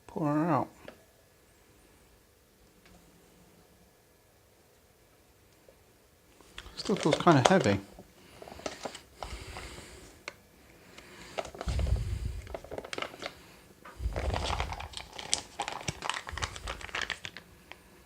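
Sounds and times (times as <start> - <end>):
drink pouch crinkling and rustling: 6.4 - 9.8, 10.9 - 17.8.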